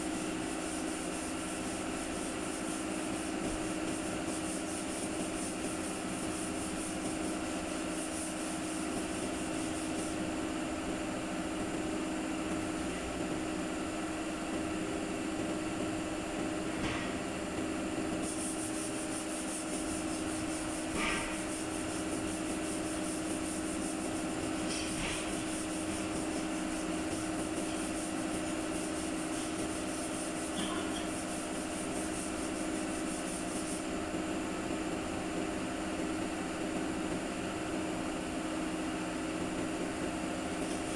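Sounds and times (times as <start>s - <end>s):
mechanical hum: 0.0s - 40.9s.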